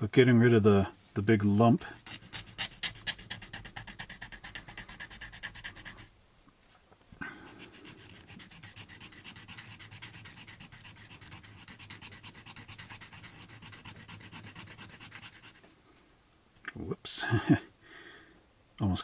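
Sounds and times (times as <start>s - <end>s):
sandpaper rubbing on plastic: 1.9s - 6.1s, 7.6s - 15.7s.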